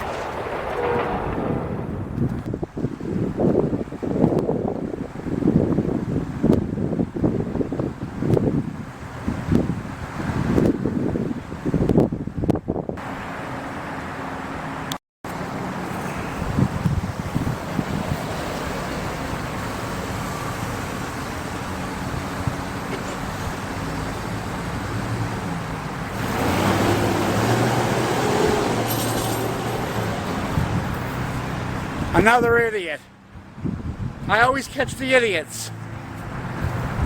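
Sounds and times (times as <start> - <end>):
vehicle engine hum: 13.0 - 32.2, 33.1 - 37.0.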